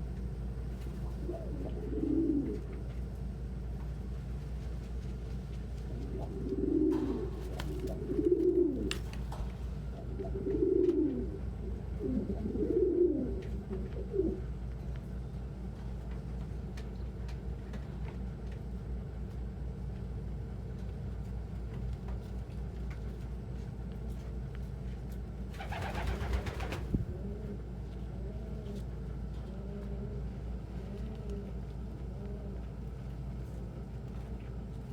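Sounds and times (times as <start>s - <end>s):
steady low hum: 0.0s - 34.9s
pigeon cooing: 1.0s - 2.8s, 5.9s - 9.1s, 10.0s - 14.6s, 25.6s - 32.8s.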